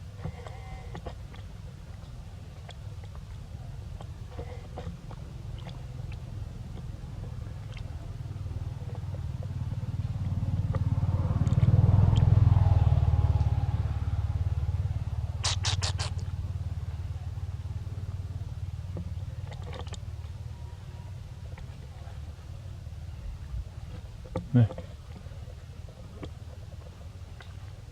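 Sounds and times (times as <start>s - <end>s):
vehicle engine passing by: 7.2s - 27.9s.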